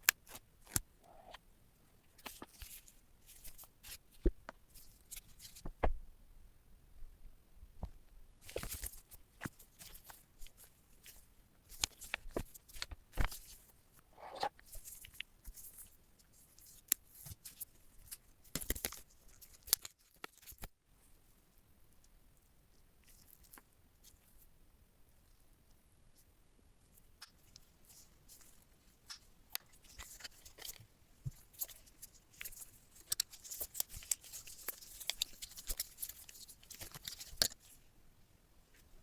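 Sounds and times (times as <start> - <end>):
packaging rustling and tearing: 31.5 - 37.8.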